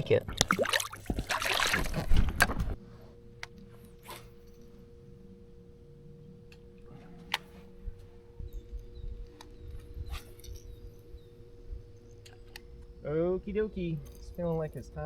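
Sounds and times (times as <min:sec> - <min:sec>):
faint two-note electrical hum: 0:00.0 - 0:15.0.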